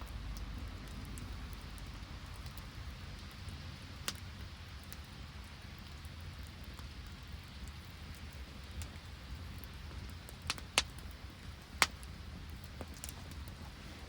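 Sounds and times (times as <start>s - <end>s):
burning wood popping: 0.0s - 14.0s
rain hissing: 10.4s - 14.0s.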